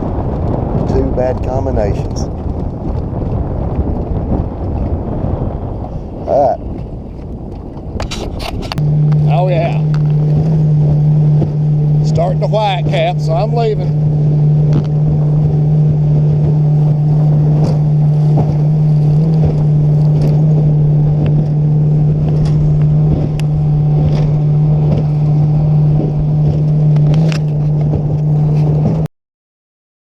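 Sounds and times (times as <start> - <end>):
outboard motor running: 0.0 - 29.1.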